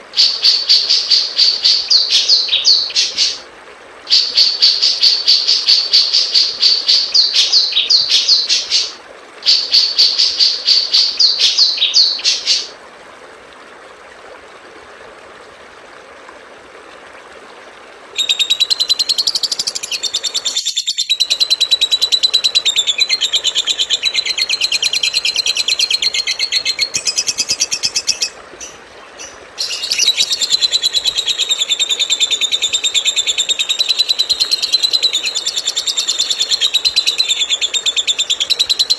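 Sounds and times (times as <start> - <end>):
songbird chirping and trilling: 0.2 - 3.4, 4.1 - 12.7, 18.2 - 38.9.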